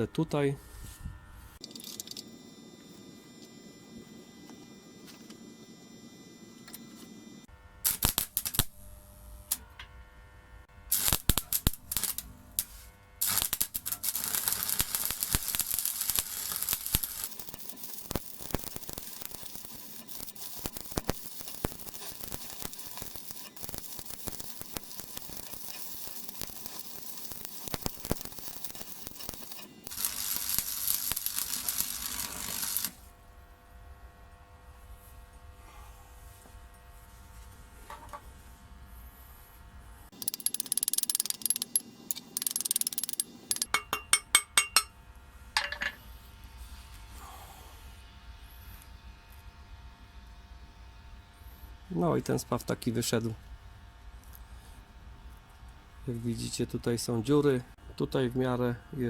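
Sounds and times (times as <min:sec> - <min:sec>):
faint transformer hum: 0:00.0 - 0:47.2, 0:47.8 - 0:59.0
welding arc crackling: 0:07.8 - 0:09.8, 0:10.8 - 0:33.1, 0:40.1 - 0:44.9.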